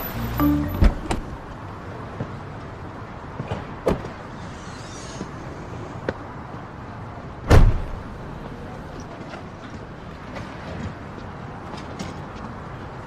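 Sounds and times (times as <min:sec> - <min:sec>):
car door shutting: 0:00.4 - 0:01.4.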